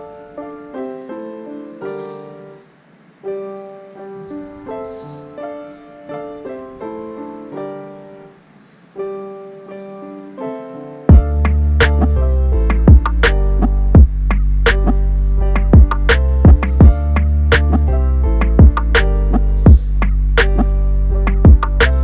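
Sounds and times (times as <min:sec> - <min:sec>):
slow gentle solo piano: 0:00.0 - 0:14.0.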